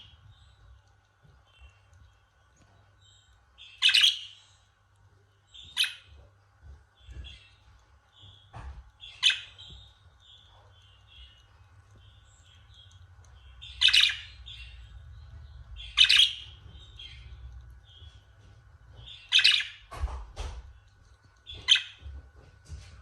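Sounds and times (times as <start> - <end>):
budgerigars chirping: 3.0 - 4.6, 5.6 - 6.3, 7.0 - 19.9, 21.5 - 22.1.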